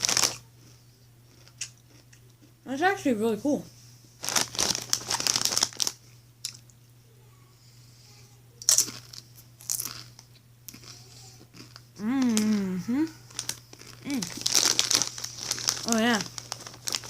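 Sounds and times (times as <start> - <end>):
tortilla chips crunching: 0.0 - 2.5, 4.2 - 6.7, 8.6 - 17.0.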